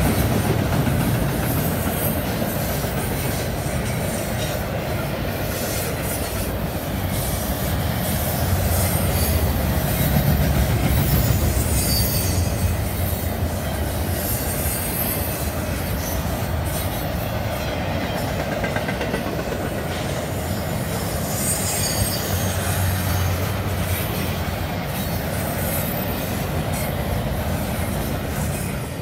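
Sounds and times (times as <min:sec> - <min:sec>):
freight train wheels rumbling on track: 0:00.0 - 0:29.0
high-pitched wheel squeal: 0:10.9 - 0:13.3, 0:14.1 - 0:17.0, 0:20.9 - 0:24.0.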